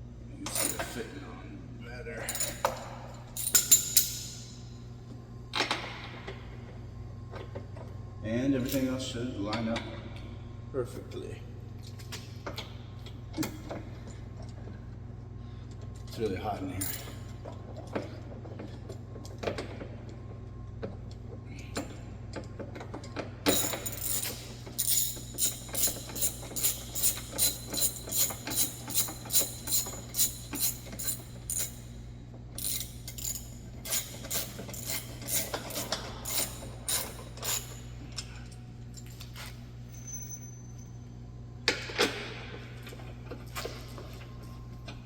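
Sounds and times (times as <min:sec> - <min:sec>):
steady low hum: 0:00.0 - 0:45.0
ratchet wrench clicking: 0:23.5 - 0:31.9, 0:32.6 - 0:37.9.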